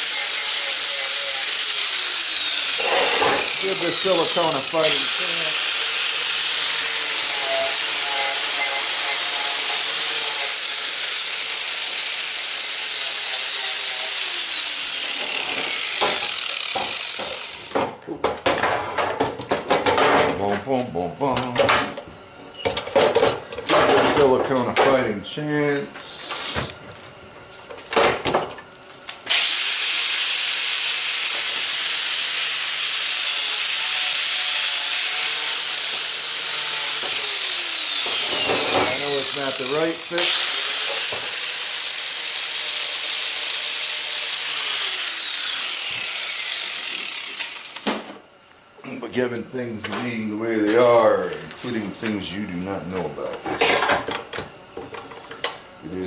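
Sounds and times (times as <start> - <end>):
power tool motor whine: 0.0 - 17.8, 29.2 - 48.2
electric blower running: 0.0 - 18.0, 29.2 - 53.2.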